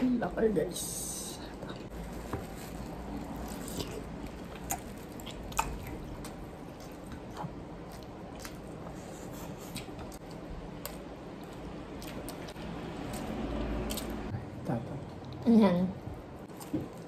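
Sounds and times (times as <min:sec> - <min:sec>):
wet chewing and lip-smacking: 0:03.6 - 0:14.3.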